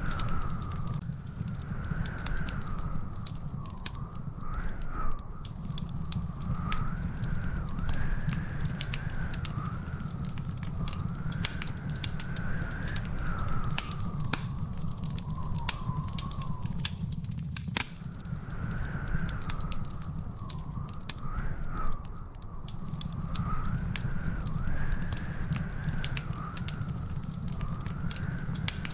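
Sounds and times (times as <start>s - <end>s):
wood fire crackling: 0.0s - 28.9s
faint wavering whistle: 1.6s - 17.2s.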